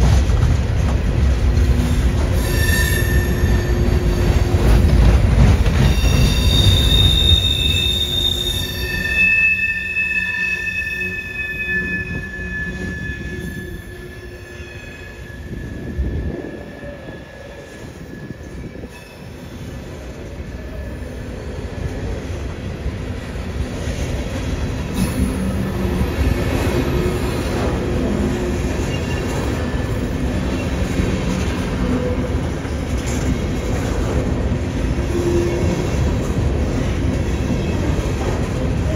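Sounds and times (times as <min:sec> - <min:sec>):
train cars rumbling past: 0:00.0 - 0:38.9
steel wheels squealing: 0:01.8 - 0:05.0, 0:05.6 - 0:21.8, 0:25.0 - 0:33.7.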